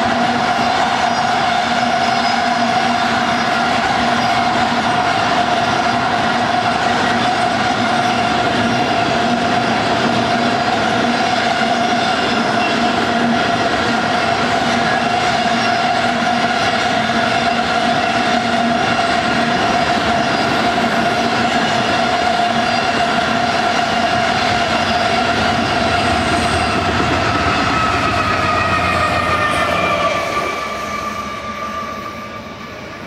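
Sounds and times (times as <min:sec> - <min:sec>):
train wheels rumbling: 0:00.0 - 0:33.0
high wheel squeal: 0:00.6 - 0:04.6, 0:11.1 - 0:13.3, 0:14.9 - 0:33.0.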